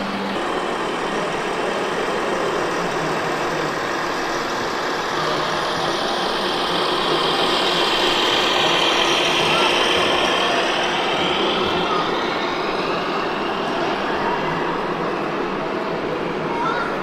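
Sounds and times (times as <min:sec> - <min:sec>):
truck engine idling: 0:00.0 - 0:13.8.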